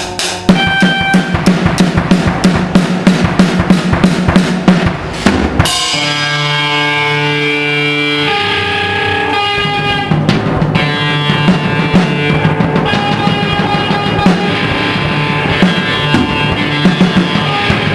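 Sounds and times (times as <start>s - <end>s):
drum hits: 0.0s - 6.8s, 9.5s - 17.9s
guitar chord ringing: 0.5s - 1.5s, 5.7s - 17.9s.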